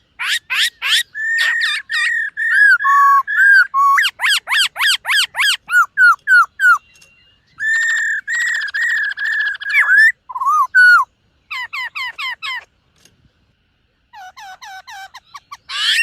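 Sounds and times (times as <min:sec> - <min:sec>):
bird singing whistles: 0:00.6 - 0:11.1.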